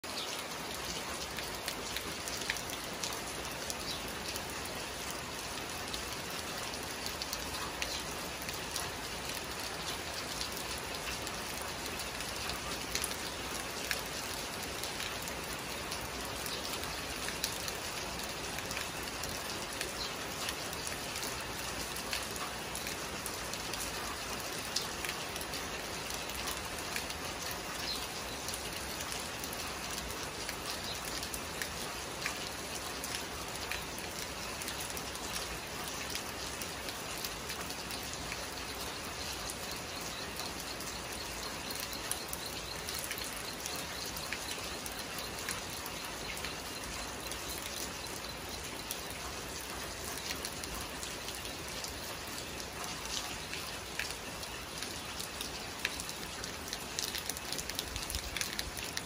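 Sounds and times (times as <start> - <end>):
raindrops ticking on surfaces: 0.0 - 59.0.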